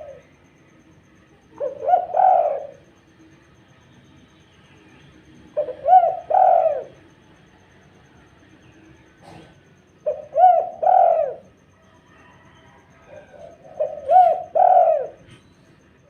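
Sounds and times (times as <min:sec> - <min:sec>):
dove cooing: 0:00.0 - 0:00.5, 0:01.1 - 0:03.2, 0:05.3 - 0:07.2, 0:08.6 - 0:16.0.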